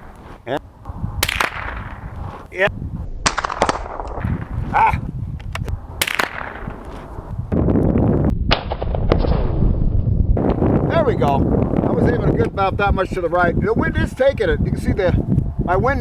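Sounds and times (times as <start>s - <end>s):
wind rumble on microphone: 0.0s - 16.0s
rifle shots: 1.2s - 2.4s, 6.0s - 7.2s.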